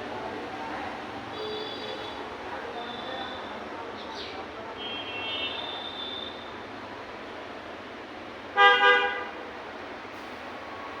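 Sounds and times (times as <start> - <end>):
vehicle horn honks: 8.6 - 9.3.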